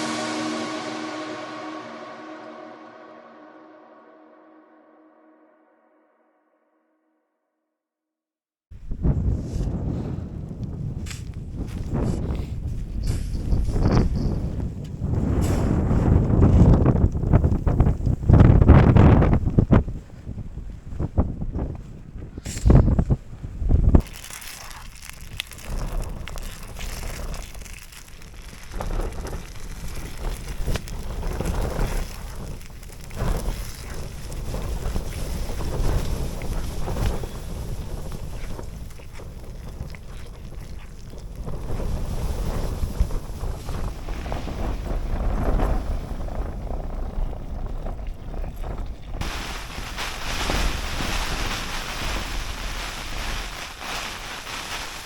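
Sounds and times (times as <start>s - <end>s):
wind buffeting microphone: 8.8s - 24.4s, 25.0s - 55.0s
hissy rush of storm wind: 49.2s - 55.0s.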